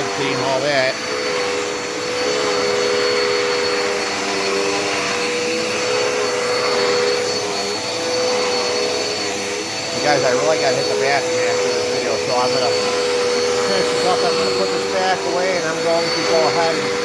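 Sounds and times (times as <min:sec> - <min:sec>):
vacuum cleaner running on carpet: 0:00.0 - 0:17.0.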